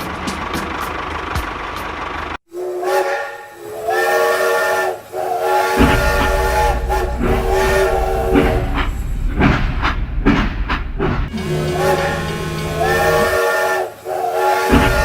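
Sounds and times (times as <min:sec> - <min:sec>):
multi-note horn blasts: 0:02.5 - 0:09.3, 0:11.3 - 0:15.0
steady low rumble: 0:05.8 - 0:13.4.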